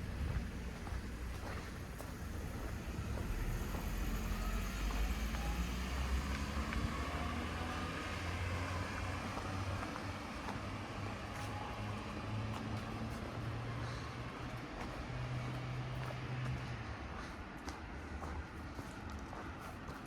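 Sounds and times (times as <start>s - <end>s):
car engine humming: 0.0s - 11.0s
street noise: 0.0s - 20.0s.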